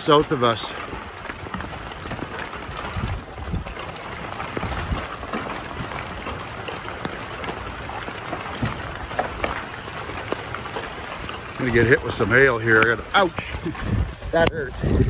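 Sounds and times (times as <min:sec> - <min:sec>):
hail and rain falling: 0:00.0 - 0:15.0
wind buffeting microphone: 0:00.0 - 0:15.0.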